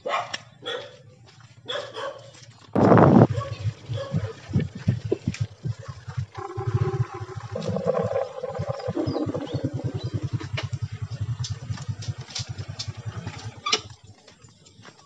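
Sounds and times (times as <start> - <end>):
small motorcycle engine idling: 6.3 - 14.9.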